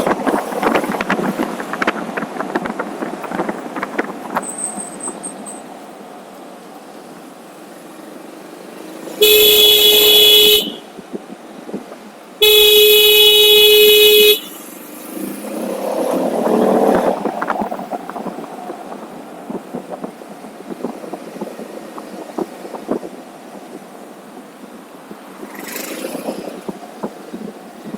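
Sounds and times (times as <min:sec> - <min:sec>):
road noise: 0:00.0 - 0:27.9
vehicle horn blasts: 0:09.2 - 0:10.9, 0:12.4 - 0:14.6.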